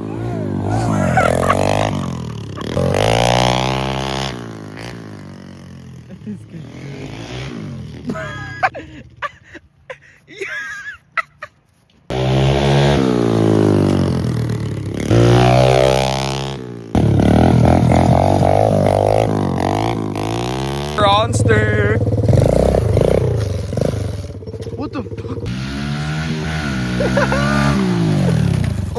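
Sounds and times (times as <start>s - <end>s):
small motorcycle engine revving: 0.0s - 9.6s, 12.1s - 28.9s.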